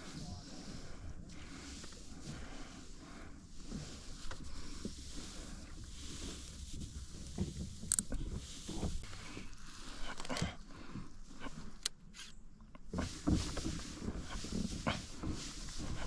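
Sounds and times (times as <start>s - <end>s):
water lapping against kayak hull: 0.0s - 11.8s, 12.8s - 16.0s
knocks and clicks of gear: 6.8s - 10.6s.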